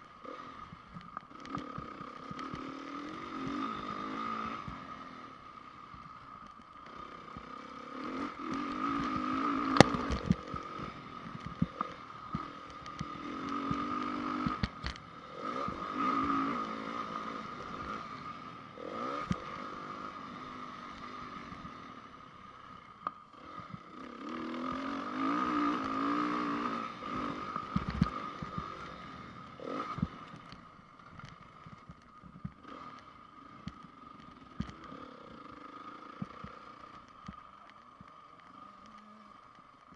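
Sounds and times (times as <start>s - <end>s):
motocross engine revving: 1.3s - 5.7s, 6.8s - 22.2s, 23.3s - 30.6s, 32.6s - 37.0s.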